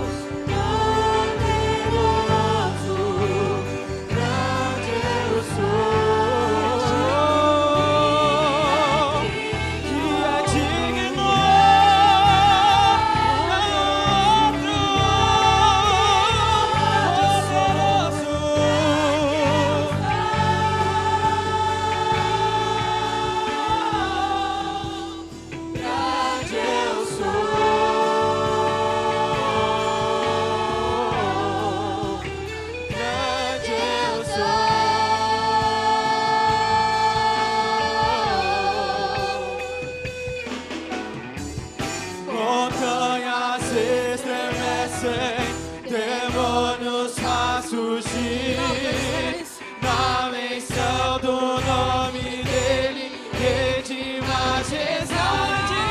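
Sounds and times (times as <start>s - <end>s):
choir singing gospel song: 0.0s - 55.9s
instrumental accompaniment: 0.0s - 55.9s.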